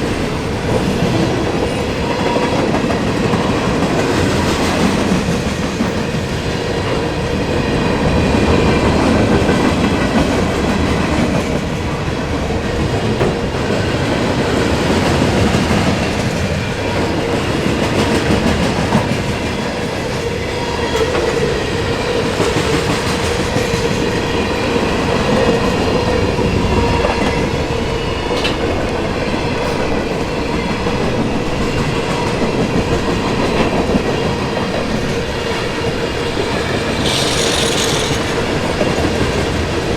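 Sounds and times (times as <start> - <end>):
train cars rumbling past: 0.0 - 39.9
wheels whining on rail: 0.0 - 39.9
wheels clacking over rail joints: 36.4 - 39.9.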